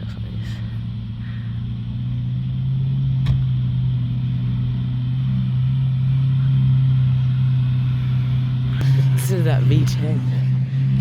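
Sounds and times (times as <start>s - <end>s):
sports car engine idling: 0.0s - 11.0s.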